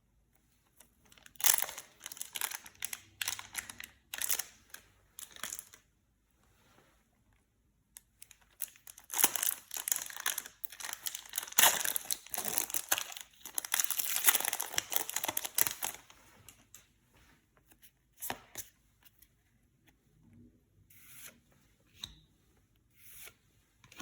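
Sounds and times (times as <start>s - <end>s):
foil wrapper tearing and crinkling: 1.4s - 4.5s, 8.6s - 16.1s.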